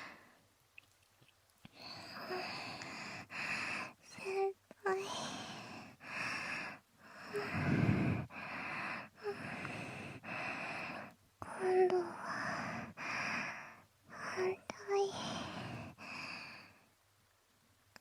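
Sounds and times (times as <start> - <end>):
short breaths: 0.0 - 0.4, 1.7 - 4.0, 5.0 - 11.2, 12.2 - 16.8
wet ear-licking sounds: 0.7 - 1.8.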